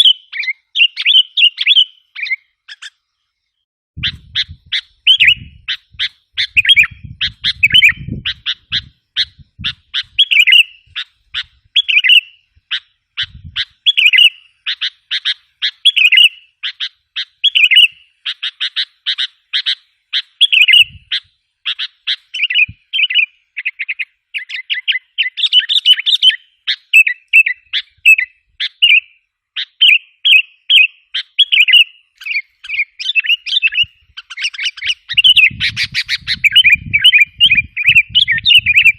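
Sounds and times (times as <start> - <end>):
bulbul chattering call: 0.0 - 3.0, 4.0 - 38.9.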